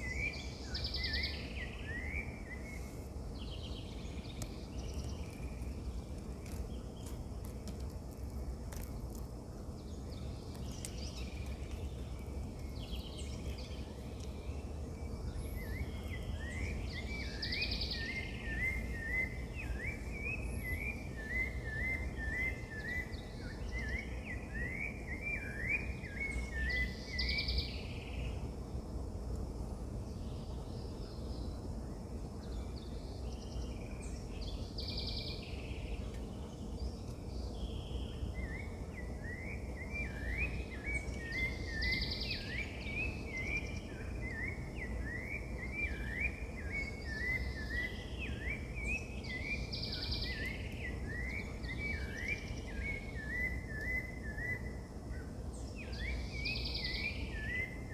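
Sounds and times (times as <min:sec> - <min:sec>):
low background rumble: 0:00.0 - 0:22.2
birds chirping: 0:00.0 - 0:28.5, 0:30.1 - 0:57.9.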